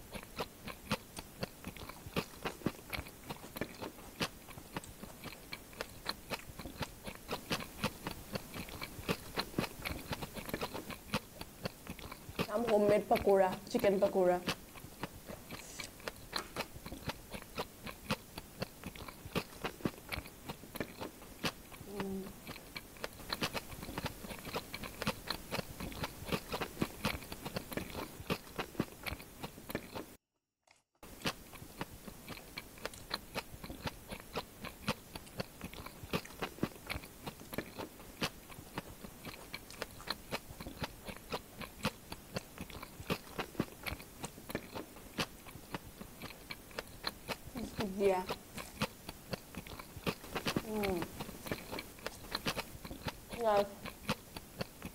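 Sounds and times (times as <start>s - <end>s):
chewing and crunching fried food: 0.0s - 54.9s.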